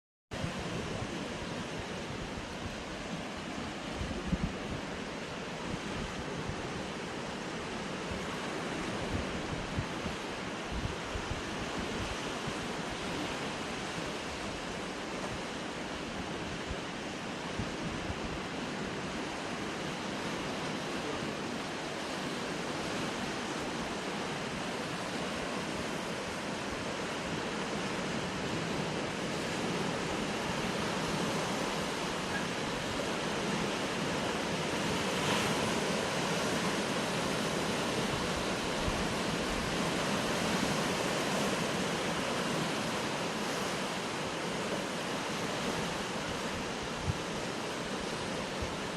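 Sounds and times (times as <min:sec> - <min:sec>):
wind buffeting microphone: 0:00.4 - 0:19.6, 0:44.8 - 0:48.9
surf washing against rocks: 0:00.4 - 0:48.9.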